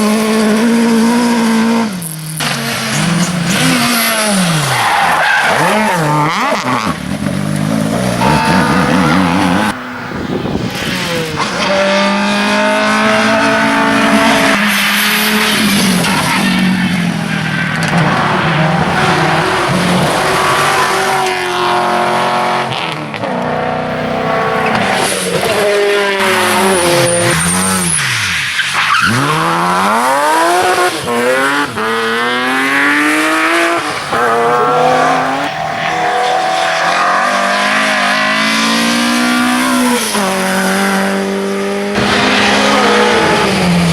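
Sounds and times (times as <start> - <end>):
rally car engines revving: 0.0 - 43.9.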